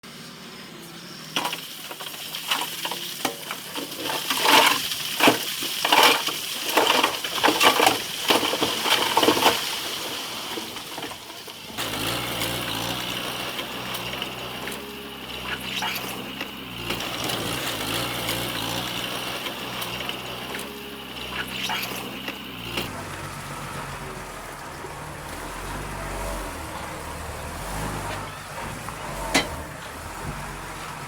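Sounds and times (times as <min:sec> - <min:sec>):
bulldozer diesel engine running: 0:00.0 - 0:04.4, 0:11.0 - 0:31.0
stones clattering and crunching: 0:01.4 - 0:11.0.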